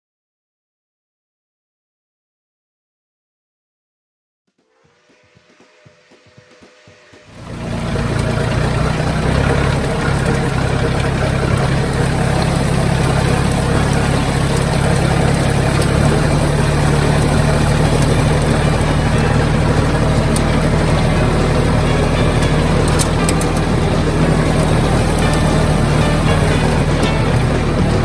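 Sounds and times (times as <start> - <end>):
tractor engine running: 7.3 - 28.0.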